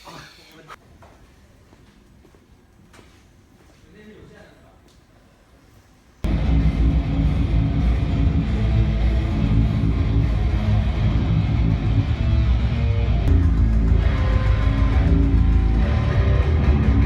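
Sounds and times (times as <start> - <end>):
electric guitar music with bass: 6.3 - 17.0.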